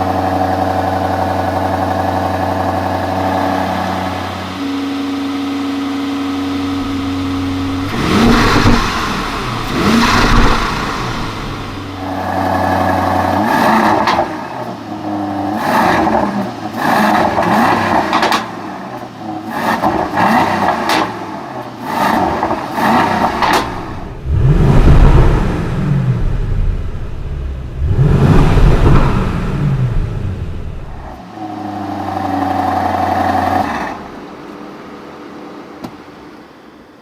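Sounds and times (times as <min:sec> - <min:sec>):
exhaust crackles: 0:00.0 - 0:14.3, 0:22.0 - 0:34.4
car engine revving: 0:00.0 - 0:18.5, 0:21.8 - 0:34.4.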